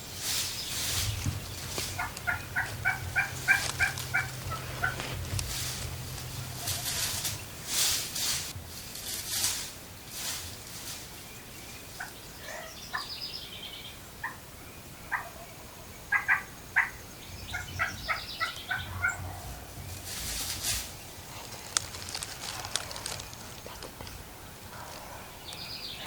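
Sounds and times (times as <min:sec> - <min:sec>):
rustling: 0:00.0 - 0:12.1, 0:19.0 - 0:25.1
turkey calls: 0:00.7 - 0:07.8, 0:11.9 - 0:13.1, 0:15.1 - 0:26.0.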